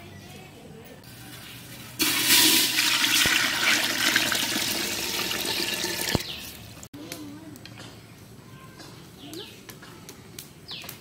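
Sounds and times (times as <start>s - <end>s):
water pouring and splashing: 2.0s - 6.7s.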